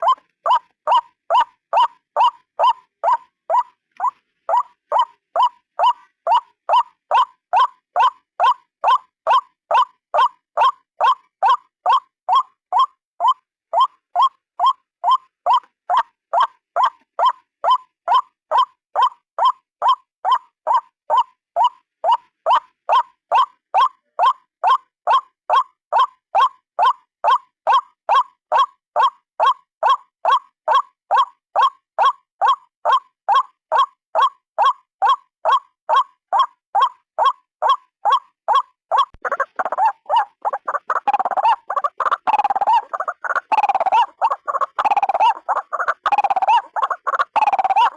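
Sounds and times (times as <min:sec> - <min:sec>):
waterhen calls: 0:00.0 - 0:33.0, 0:33.7 - 0:47.9
harsh bird calls: 0:38.5 - 0:47.9.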